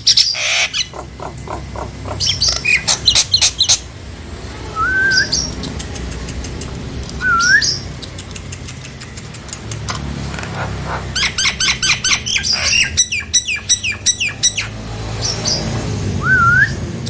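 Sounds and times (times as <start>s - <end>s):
steady low hum: 0.0s - 17.0s
myna whistles slurring upward: 16.2s - 16.8s.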